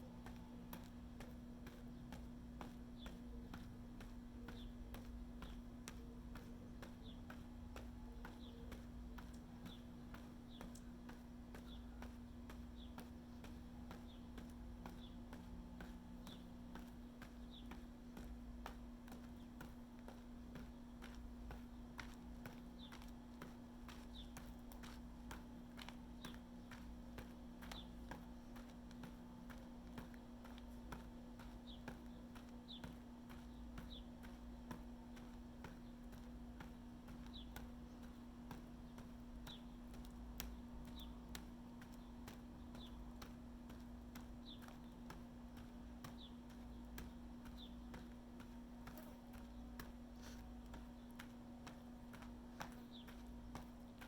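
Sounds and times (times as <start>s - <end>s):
faint steady hum: 0.0s - 54.0s
footsteps walking: 0.0s - 54.0s
bird chirping: 4.4s - 10.9s, 36.8s - 54.0s.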